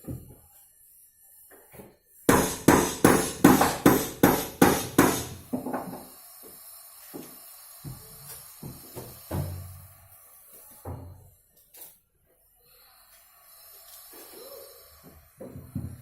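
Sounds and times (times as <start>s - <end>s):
hammer blows: 2.3s - 5.4s.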